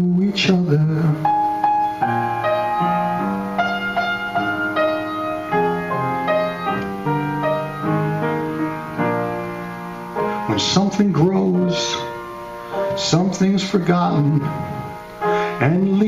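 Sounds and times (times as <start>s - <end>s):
solo piano playing chords: 0.0s - 16.0s.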